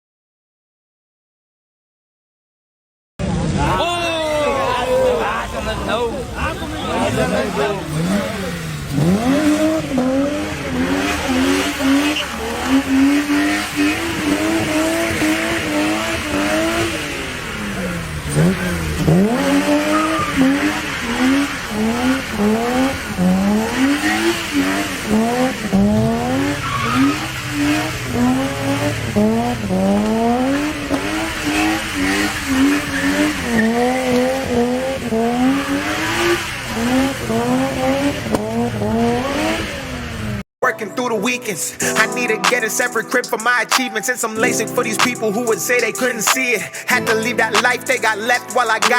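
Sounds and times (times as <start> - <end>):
car engine revving: 3.2 - 40.4, 44.8 - 48.9
tyres squealing: 3.6 - 15.9, 17.6 - 21.4, 26.2 - 27.9.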